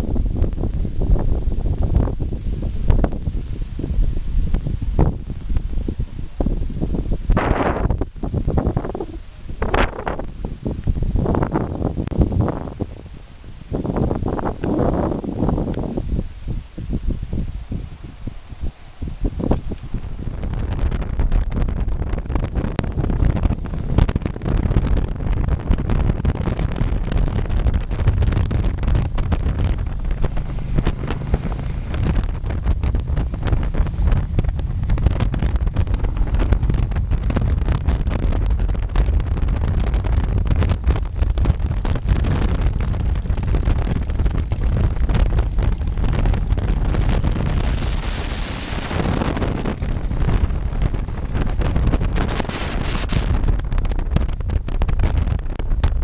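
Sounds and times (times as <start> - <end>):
road noise: 0.0 - 56.0
wind buffeting microphone: 0.0 - 56.0
motorcycle engine: 13.9 - 55.7.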